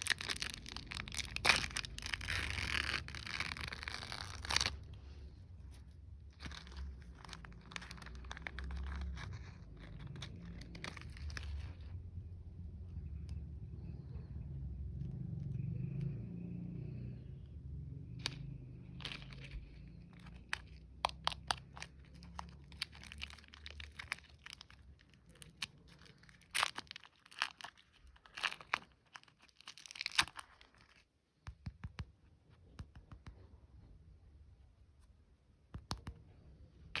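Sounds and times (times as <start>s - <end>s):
plastic wrappers crinkling: 0.0s - 5.0s, 6.2s - 12.0s, 18.2s - 31.2s.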